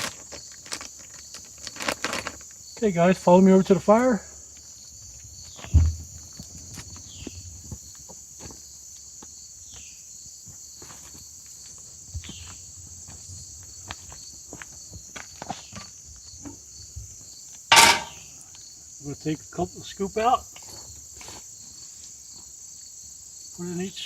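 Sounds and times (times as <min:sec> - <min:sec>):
crickets chirping: 0:00.0 - 0:24.0
footsteps walking outdoors: 0:04.6 - 0:18.7, 0:20.6 - 0:23.0.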